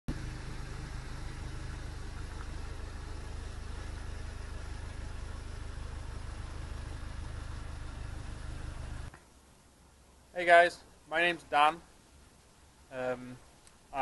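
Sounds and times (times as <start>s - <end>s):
car engine idling: 0.1s - 9.2s.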